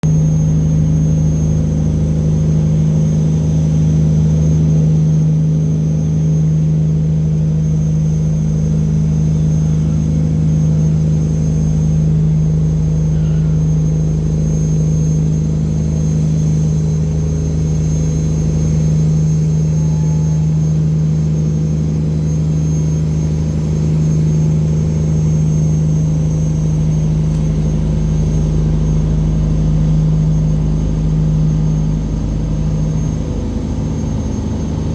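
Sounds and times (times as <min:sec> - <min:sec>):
boat engine droning: 0:00.0 - 0:34.9.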